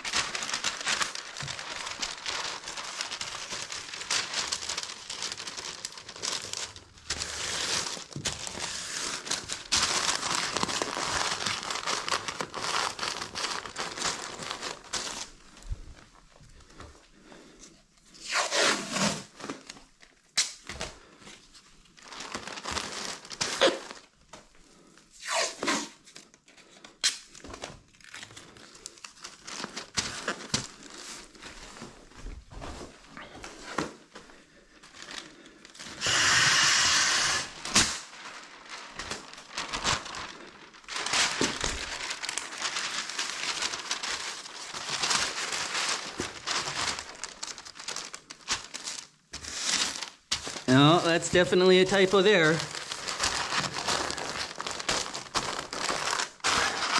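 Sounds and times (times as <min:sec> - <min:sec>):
paper crinkling and rustling: 0:00.0 - 0:18.1, 0:19.2 - 0:25.1, 0:26.0 - 0:36.1, 0:37.0 - 0:56.9
paper tearing: 0:18.2 - 0:19.4, 0:25.2 - 0:26.0, 0:36.0 - 0:38.2, 0:55.4 - 0:56.9.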